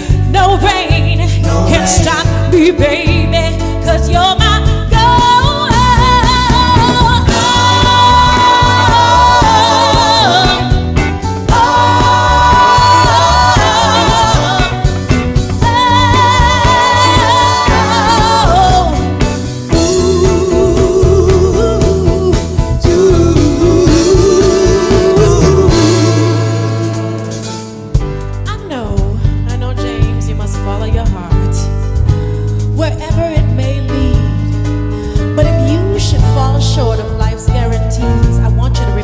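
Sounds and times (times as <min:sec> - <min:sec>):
soul band music: 0:00.0 - 0:39.0
lower voice singing: 0:15.6 - 0:26.9.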